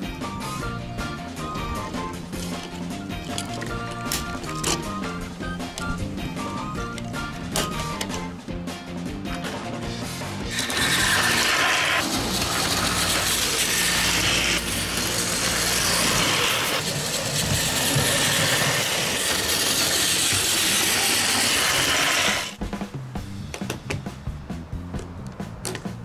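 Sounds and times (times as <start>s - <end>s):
toy train motor whirring: 1.7s - 5.2s, 10.4s - 22.6s
toy cars rattling on plastic track: 2.3s - 4.9s, 10.5s - 22.6s.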